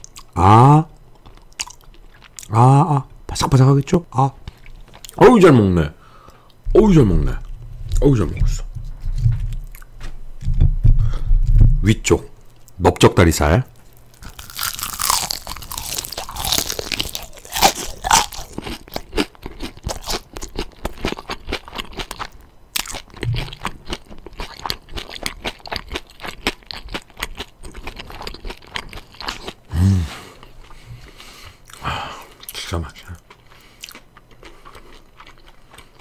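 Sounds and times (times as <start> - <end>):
crunching fried chicken: 13.9 - 29.7, 32.5 - 36.0.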